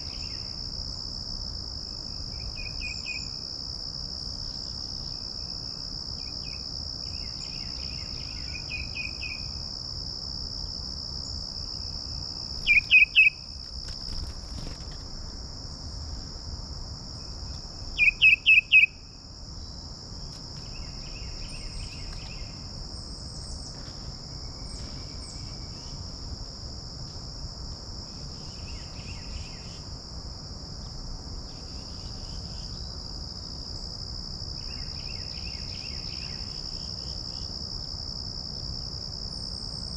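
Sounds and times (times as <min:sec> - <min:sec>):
crickets chorus: 0:00.0 - 0:39.9
songbirds calling: 0:12.6 - 0:13.4, 0:17.5 - 0:18.9.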